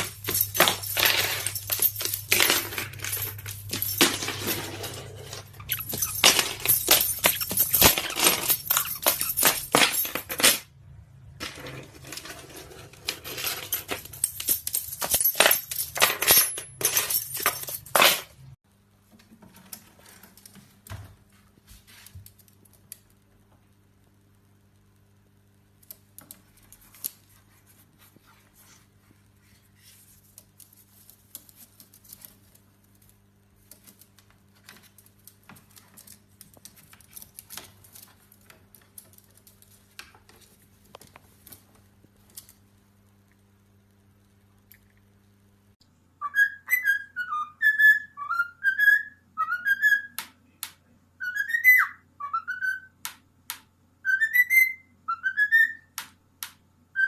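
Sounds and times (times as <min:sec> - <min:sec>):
parrot whistling: 0:46.2 - 0:50.2, 0:51.2 - 0:53.0, 0:54.0 - 0:55.9.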